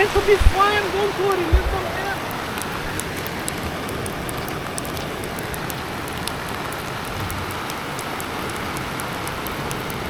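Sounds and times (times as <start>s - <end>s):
rain drops ticking: 0.0s - 10.0s.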